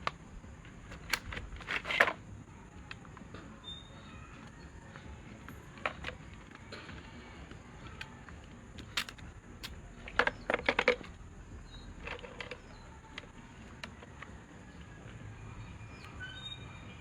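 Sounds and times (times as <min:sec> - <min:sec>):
clicks and taps on fan motor: 0:07.8 - 0:11.2.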